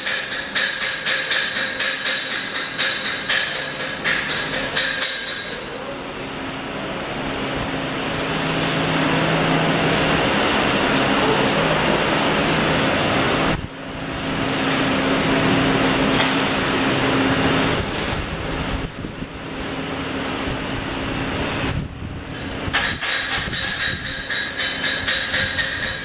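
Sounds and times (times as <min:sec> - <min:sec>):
arc welding hiss: 0:00.0 - 0:26.0.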